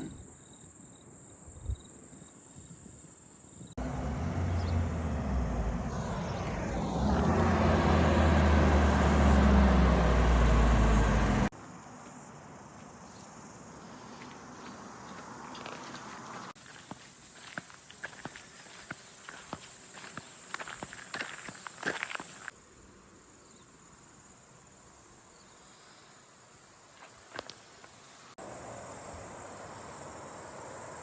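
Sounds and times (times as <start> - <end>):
outdoor ambience: 0.0 - 31.0
car engine and road noise: 3.8 - 11.6, 14.3 - 16.6, 28.4 - 31.0.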